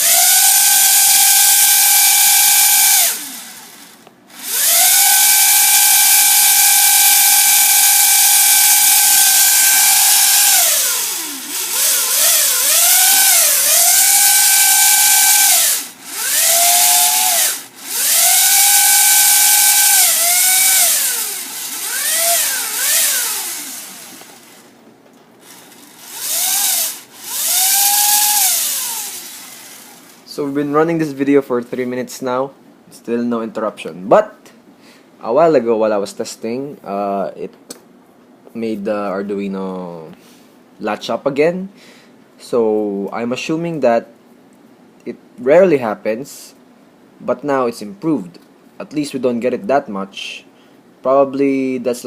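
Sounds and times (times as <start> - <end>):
small electric motors whining: 0.0 - 24.7, 25.4 - 30.3
motor brushes hissing: 8.8 - 24.7, 25.4 - 30.6.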